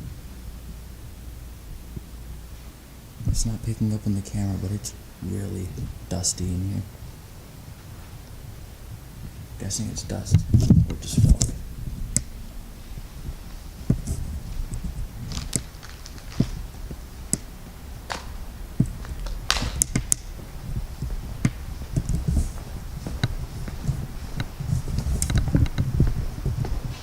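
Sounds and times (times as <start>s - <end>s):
low steady rumble: 0.0s - 27.0s
footsteps crunching on debris: 12.8s - 17.2s, 18.0s - 25.7s
sharp clicks: 18.1s - 20.4s.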